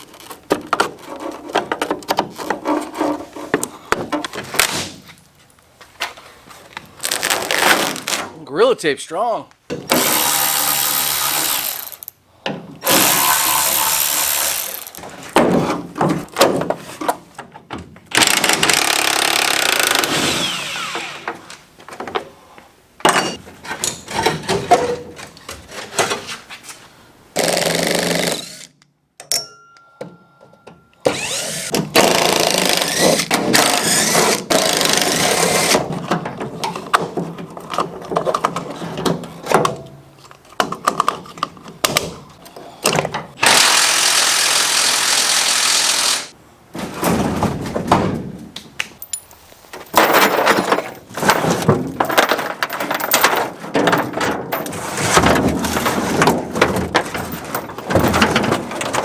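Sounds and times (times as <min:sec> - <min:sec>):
power tools running: 0:09.9 - 0:12.1, 0:12.8 - 0:15.0, 0:18.2 - 0:21.3, 0:31.1 - 0:31.7, 0:43.4 - 0:46.3
knocks and clatter: 0:49.8 - 0:59.0.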